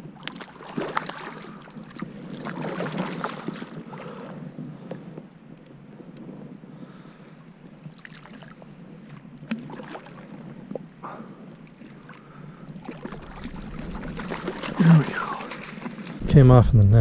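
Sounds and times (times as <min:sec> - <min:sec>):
small water splashes: 0:00.1 - 0:04.3, 0:07.8 - 0:16.2
low wash of water: 0:06.8 - 0:17.0.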